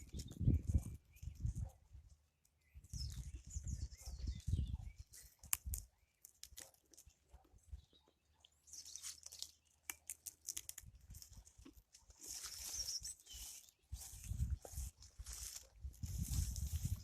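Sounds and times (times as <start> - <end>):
crackles: 5.1 - 7.1, 9.0 - 12.8
footsteps crunching on ground: 11.1 - 17.0.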